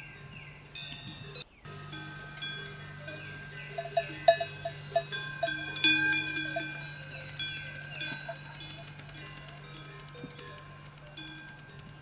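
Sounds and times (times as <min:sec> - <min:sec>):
bells clanking: 0:00.0 - 0:12.0
steady low hum: 0:00.0 - 0:12.0.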